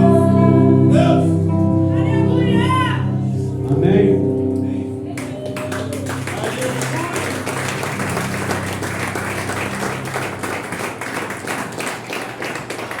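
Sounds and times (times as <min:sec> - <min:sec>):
crowd applauding: 0:05.2 - 0:13.0.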